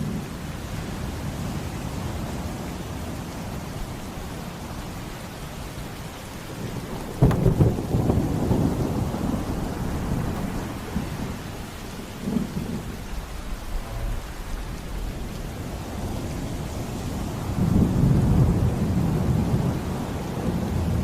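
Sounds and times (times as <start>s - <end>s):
steady rain: 0.0s - 21.0s
thunderclap rumbling: 3.3s - 19.8s.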